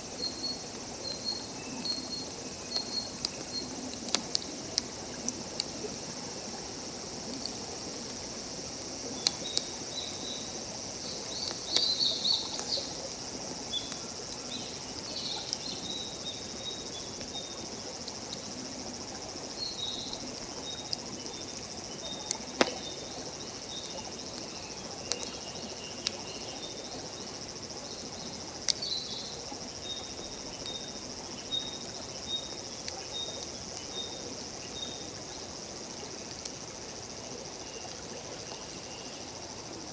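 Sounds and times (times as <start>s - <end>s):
insects chorus: 0.0s - 39.9s
campfire crackling and popping: 0.2s - 8.2s, 9.0s - 13.2s, 22.2s - 23.0s, 23.8s - 25.4s.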